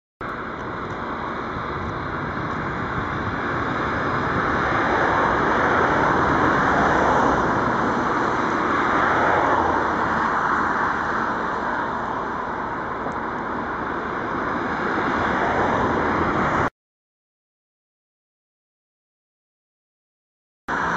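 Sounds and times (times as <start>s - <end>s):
traffic rumble: 0.2s - 16.7s.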